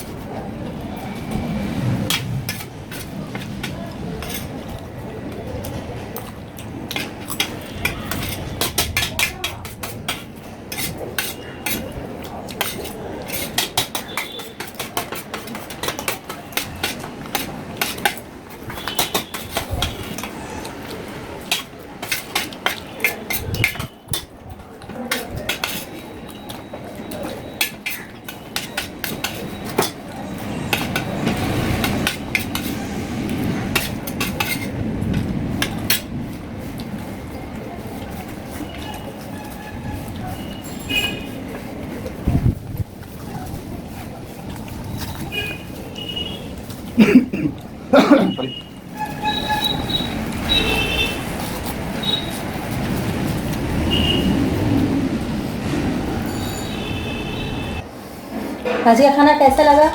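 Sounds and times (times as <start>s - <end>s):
cutlery clinking on plates: 2.1s - 4.7s, 6.2s - 20.4s, 21.4s - 32.8s, 33.7s - 36.1s.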